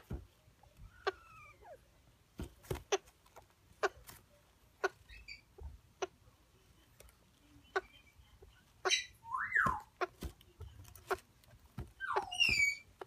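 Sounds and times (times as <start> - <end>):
parrot whistling: 8.9 - 9.8.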